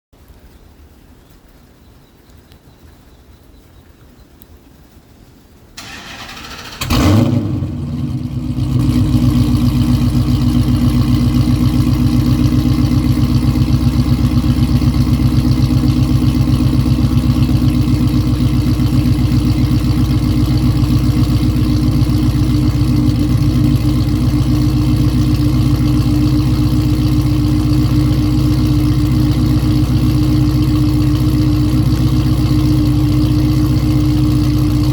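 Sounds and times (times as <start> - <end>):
starter motor cranking: 5.8 - 7.4
car engine starting and idling: 5.8 - 34.9.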